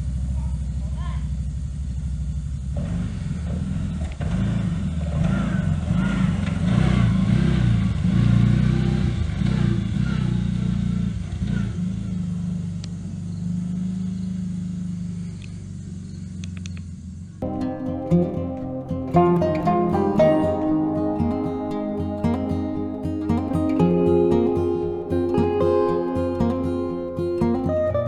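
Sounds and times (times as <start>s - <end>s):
off-road vehicle engine running: 0.0s - 17.3s.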